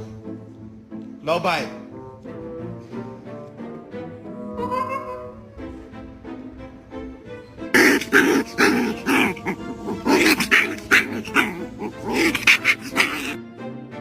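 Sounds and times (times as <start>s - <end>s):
background music: 0.0s - 14.0s
dog barking and growling: 7.8s - 13.4s.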